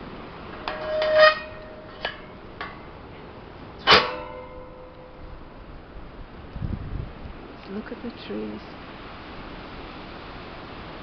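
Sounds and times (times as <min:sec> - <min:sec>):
loud ringing clanks: 0:00.6 - 0:02.9, 0:03.8 - 0:05.5.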